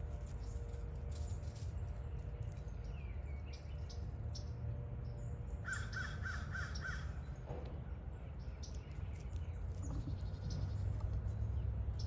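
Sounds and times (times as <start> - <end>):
bird calls: 1.9 - 12.0
steady low rumble: 6.3 - 12.0.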